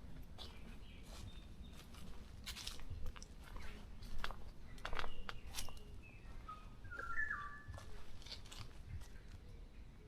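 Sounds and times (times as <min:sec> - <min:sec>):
bird chirps: 0:03.5 - 0:10.0.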